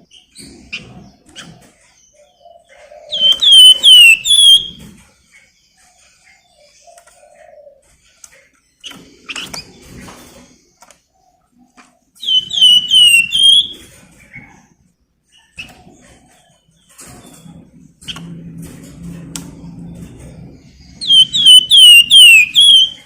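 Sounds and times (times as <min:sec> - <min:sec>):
songbird whistling: 0:03.1 - 0:04.8, 0:12.2 - 0:13.8, 0:21.0 - 0:23.0.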